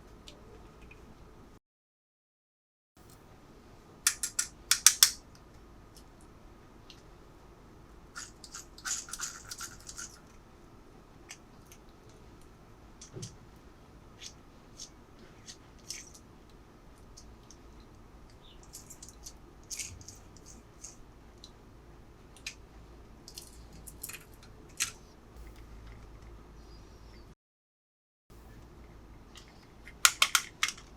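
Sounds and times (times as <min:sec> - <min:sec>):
plastic pieces clicking and tapping: 0:04.1 - 0:05.2, 0:08.2 - 0:10.3, 0:29.4 - 0:30.9.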